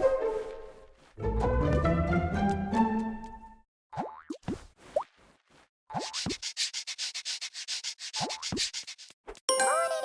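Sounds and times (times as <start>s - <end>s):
background music: 0.0s - 3.6s, 9.5s - 10.0s.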